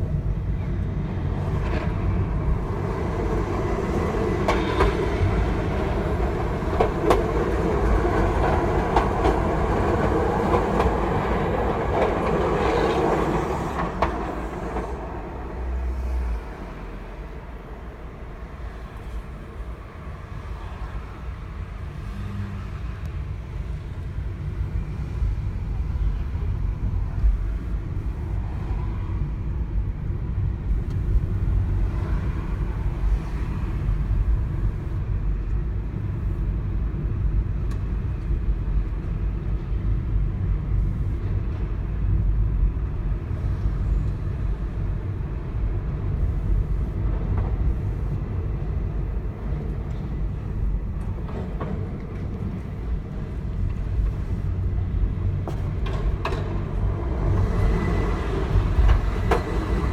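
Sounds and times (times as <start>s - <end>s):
train running: 0.0s - 59.9s.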